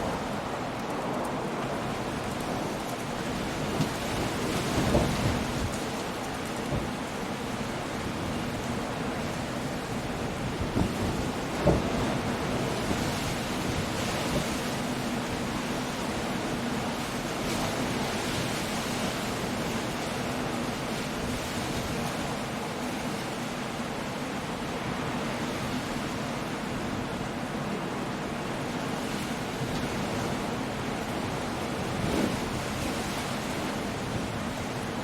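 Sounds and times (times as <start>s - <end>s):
wind: 0.0s - 35.0s.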